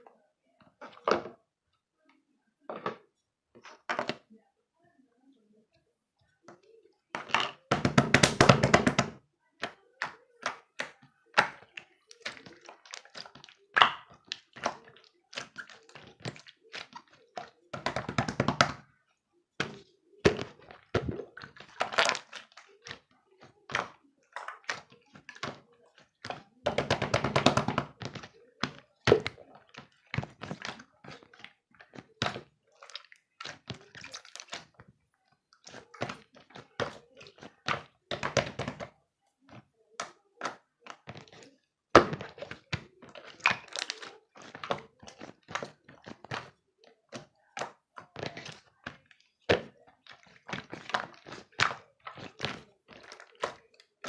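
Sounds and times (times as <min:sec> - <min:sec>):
objects being handled: 0:02.7 - 0:04.3, 0:19.5 - 0:54.0.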